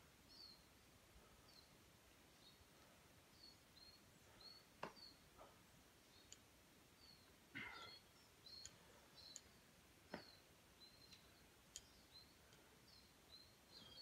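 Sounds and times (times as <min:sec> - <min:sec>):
soft clicks: 0:06.2 - 0:06.5, 0:08.5 - 0:12.7
high bird chirps: 0:07.0 - 0:09.6.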